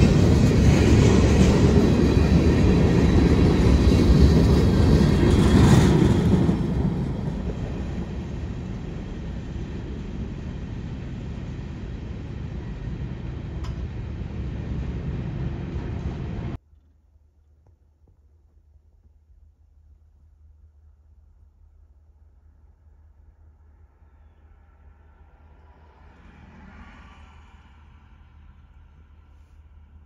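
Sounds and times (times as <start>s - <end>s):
freight train wheels rumbling: 0.0s - 16.6s.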